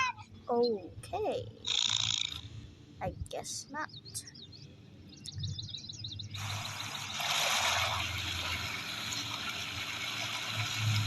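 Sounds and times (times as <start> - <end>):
bird chirping rapidly: 0.0 - 9.4
water rushing: 6.4 - 11.0.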